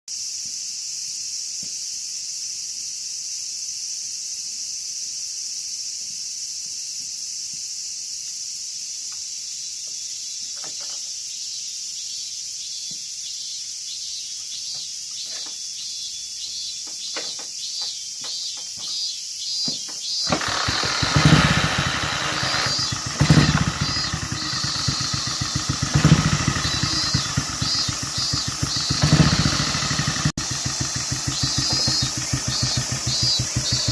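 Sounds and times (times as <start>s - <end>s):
insects droning: 0.1s - 33.9s
motorcycle engine starting and revving: 18.5s - 33.9s.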